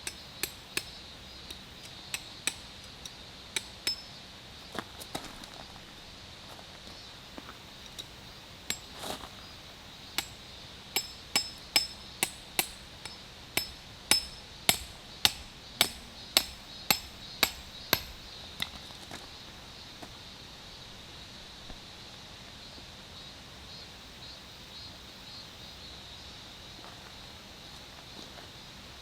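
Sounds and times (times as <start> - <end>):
hammer striking metal: 0.0 - 2.7, 3.6 - 4.1, 8.7 - 9.0, 10.2 - 10.4, 11.0 - 18.3.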